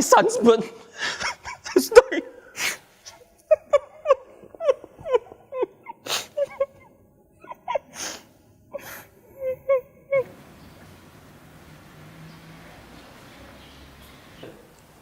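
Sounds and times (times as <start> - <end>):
man sobbing: 0.9 - 10.3
sharp sniffling gasps: 2.4 - 3.2, 6.0 - 6.6, 7.9 - 9.2.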